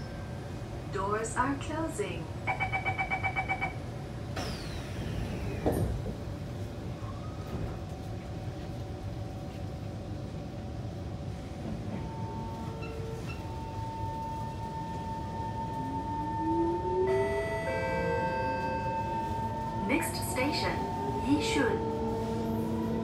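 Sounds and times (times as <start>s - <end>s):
train rumbling: 0.0s - 23.0s
train doors sliding shut: 4.3s - 6.8s, 11.6s - 13.8s, 17.1s - 23.0s.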